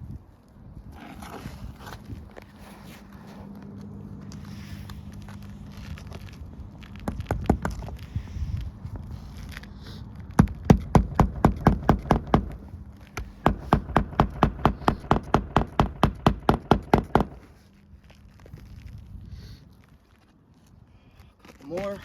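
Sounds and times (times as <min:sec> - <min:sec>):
hammer striking nails: 0:10.4 - 0:17.6.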